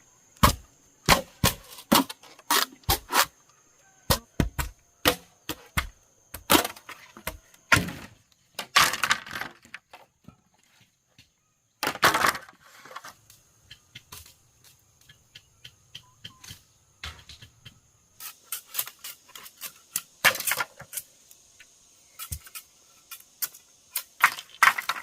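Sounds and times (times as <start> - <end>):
bamboo splintering rips: 0.4 - 3.4
bamboo cracking: 0.4 - 3.5, 22.2 - 25.0.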